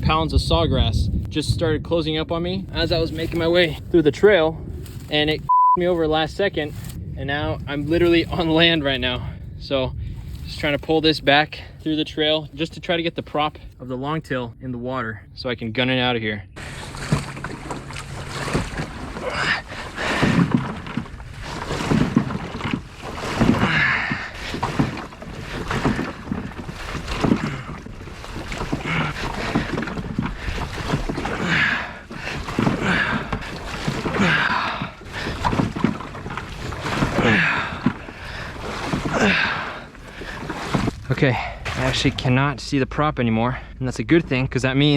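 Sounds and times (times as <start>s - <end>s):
boat dragged through grass and water: 0.0s - 14.2s, 16.6s - 42.5s
straining breaths: 18.3s - 41.7s.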